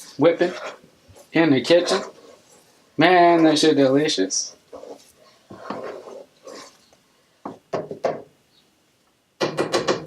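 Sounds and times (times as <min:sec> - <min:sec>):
utensil rustling scrape: 0:00.0 - 0:03.8, 0:04.4 - 0:07.0.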